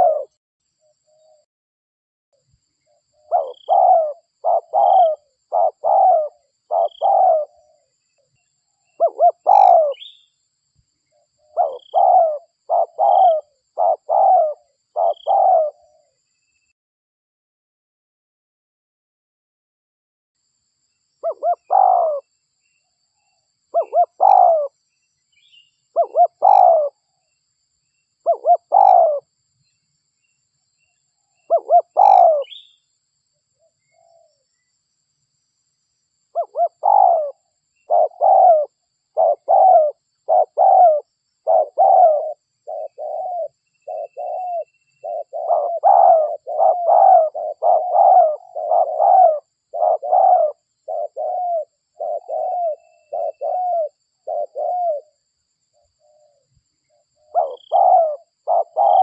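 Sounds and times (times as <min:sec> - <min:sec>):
dove cooing: 0:00.0 - 0:00.4, 0:03.1 - 0:07.9, 0:08.9 - 0:10.2, 0:11.4 - 0:16.2, 0:21.2 - 0:22.3, 0:23.7 - 0:24.8, 0:25.9 - 0:27.0, 0:28.2 - 0:29.3, 0:31.5 - 0:32.7, 0:36.4 - 0:55.2, 0:56.0 - 0:59.0.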